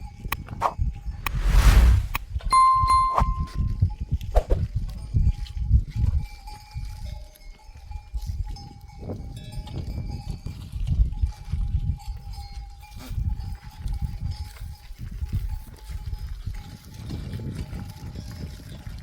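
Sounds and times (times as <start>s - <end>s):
low rumble: 1.1s - 3.7s
animal bells clinking: 5.0s - 19.0s.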